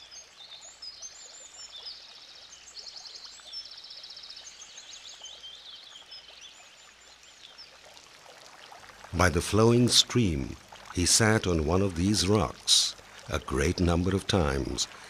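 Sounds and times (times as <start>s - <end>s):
stream rushing: 8.9s - 15.0s
songbirds chirping and singing: 11.0s - 15.0s.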